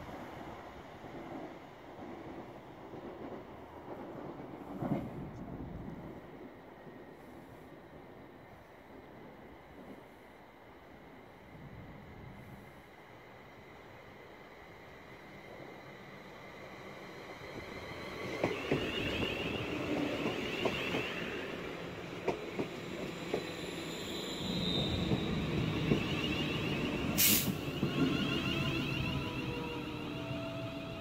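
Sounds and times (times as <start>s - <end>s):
train wheels rushing on rail: 15.3s - 31.0s
sharp high hiss: 27.1s - 27.8s.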